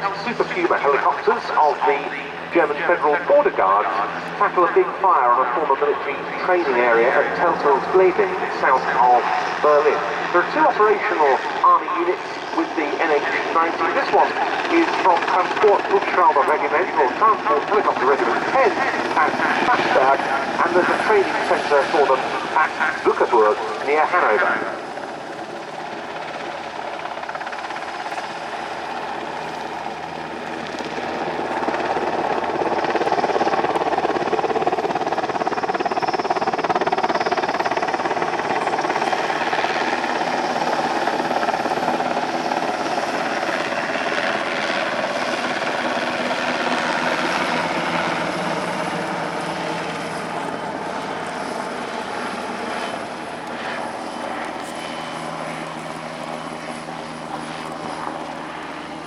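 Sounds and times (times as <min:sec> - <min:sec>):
helicopter rotor and turbine noise: 0:00.0 - 0:59.0.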